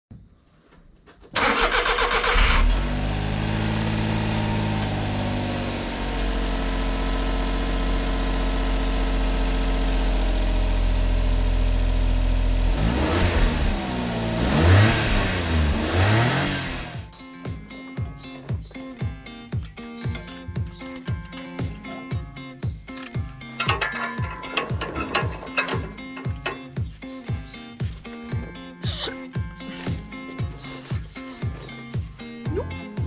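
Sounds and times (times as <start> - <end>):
starter cranking engine: 1.3 - 2.8, 23.0 - 26.8
truck engine idling and revving: 1.4 - 17.1, 19.6 - 28.5.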